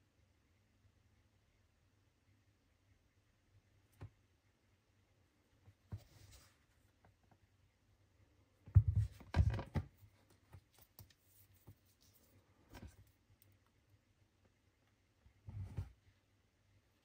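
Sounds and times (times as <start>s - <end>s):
rustling: 8.8s - 13.8s.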